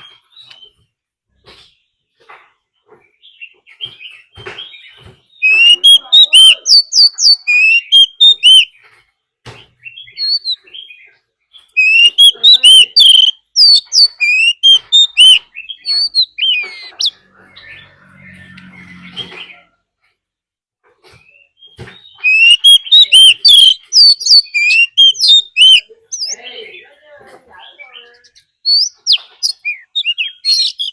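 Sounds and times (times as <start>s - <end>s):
bird whistling song: 3.3s - 8.9s, 9.8s - 19.6s, 21.2s - 26.5s, 27.8s - 30.9s.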